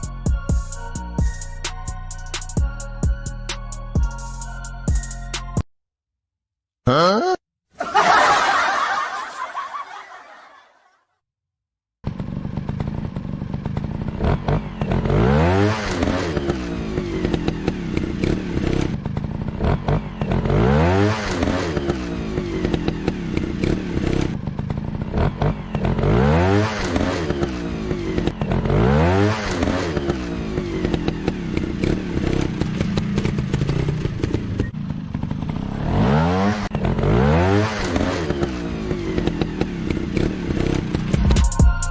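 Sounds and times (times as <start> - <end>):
motorcycle engine revving: 12.0 - 41.5.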